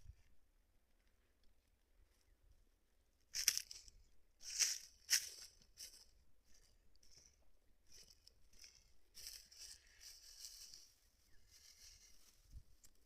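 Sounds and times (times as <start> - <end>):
dry rustling and crunching: 3.4 - 13.0.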